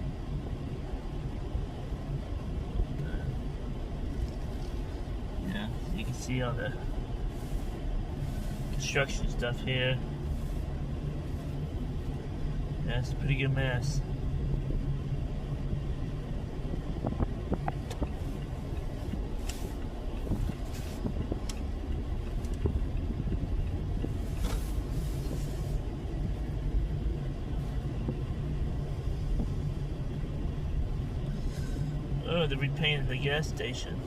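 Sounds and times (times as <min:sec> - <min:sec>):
road and engine rumble in car: 0:00.0 - 0:34.0
brief hiss: 0:31.3 - 0:32.0.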